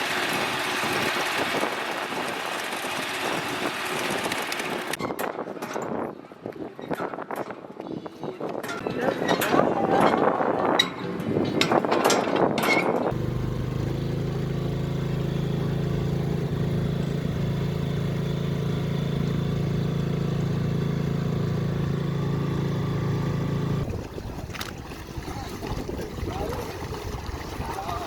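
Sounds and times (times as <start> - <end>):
small gasoline engine running: 0.0 - 5.0, 13.1 - 23.9.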